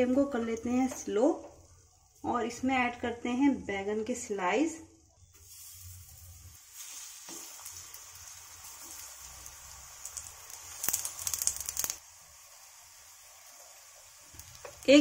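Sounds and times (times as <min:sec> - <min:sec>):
slices sizzling in hot oil: 0:05.3 - 0:15.0.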